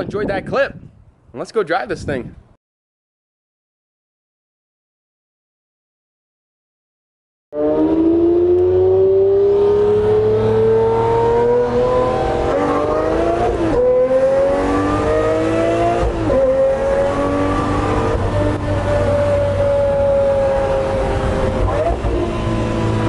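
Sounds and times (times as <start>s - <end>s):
sports car engine accelerating: 7.6s - 23.0s.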